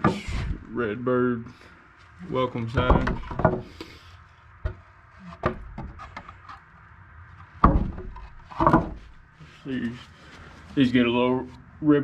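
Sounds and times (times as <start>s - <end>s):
faint handling noise: 1.9s - 11.7s
sharp knocks: 2.8s - 3.7s, 7.6s - 9.1s.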